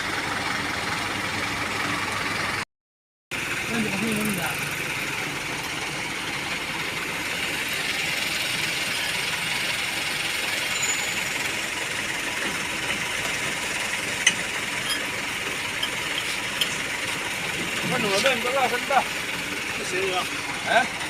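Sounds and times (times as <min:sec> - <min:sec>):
truck engine idling: 0:00.0 - 0:02.6, 0:03.3 - 0:21.0.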